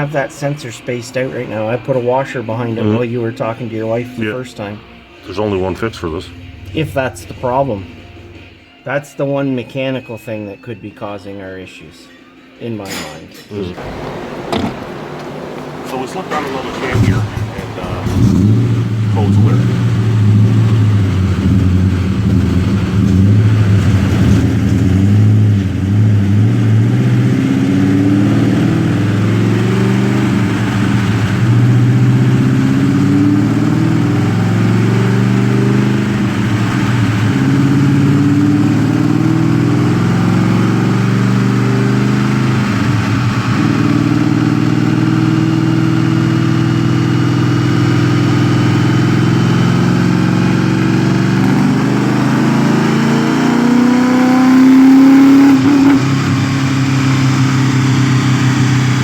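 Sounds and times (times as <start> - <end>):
car engine running: 13.8 - 59.0.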